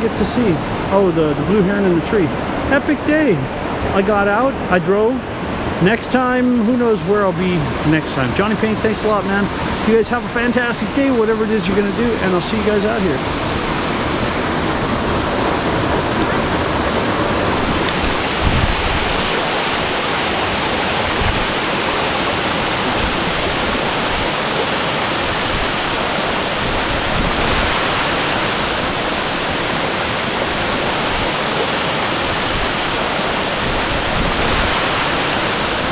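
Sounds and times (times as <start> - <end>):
waterfall pouring: 9.0 - 35.9.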